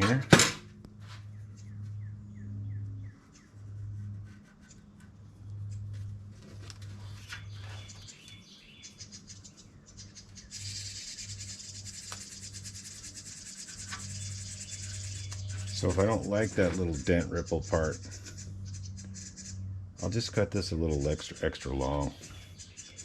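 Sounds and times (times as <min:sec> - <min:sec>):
low hum: 0:00.0 - 0:23.0
steady scratching: 0:03.1 - 0:08.0, 0:10.6 - 0:22.4.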